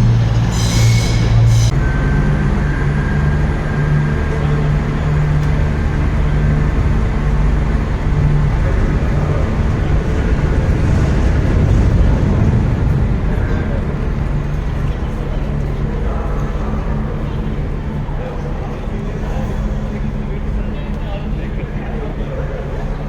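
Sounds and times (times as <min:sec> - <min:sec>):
train rumbling with hum: 0:00.0 - 0:23.0
train wheels squealing on rails: 0:00.4 - 0:12.6.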